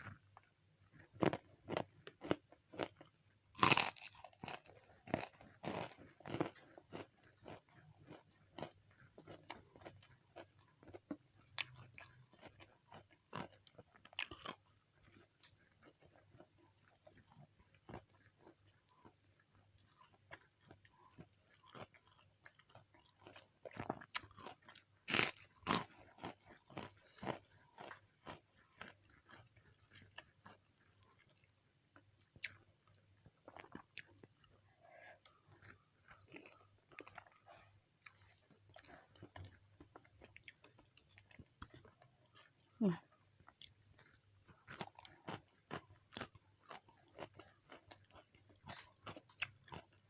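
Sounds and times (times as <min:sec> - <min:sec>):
person chewing food: 0:00.0 - 0:50.0
crunchy bites: 0:03.6 - 0:09.9, 0:23.2 - 0:29.0.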